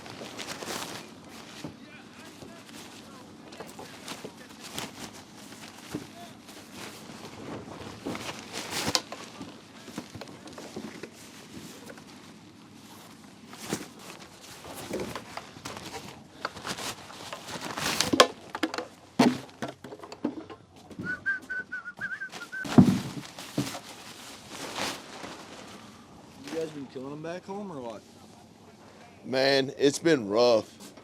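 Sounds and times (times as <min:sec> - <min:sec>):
bags rustling: 0:00.0 - 0:28.8
wavering whistle-like call: 0:21.0 - 0:22.7.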